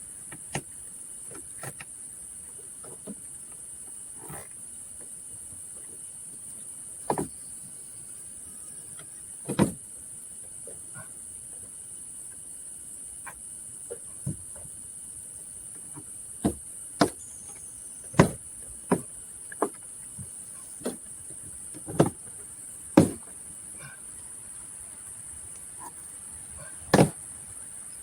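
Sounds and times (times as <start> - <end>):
crickets droning: 0.0 - 28.0
knocks and clicks on a bumper: 18.1 - 21.0, 23.0 - 23.4, 26.9 - 27.2.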